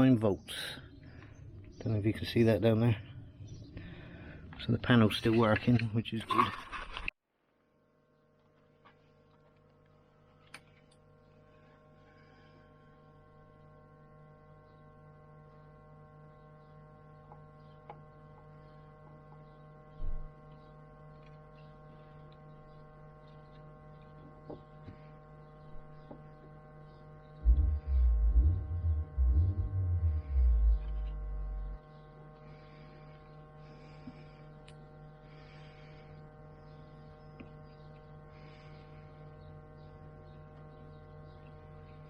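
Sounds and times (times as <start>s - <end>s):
steady electrical hum: 7.3s - 42.0s
loud low thumps and rumbling: 27.4s - 31.8s.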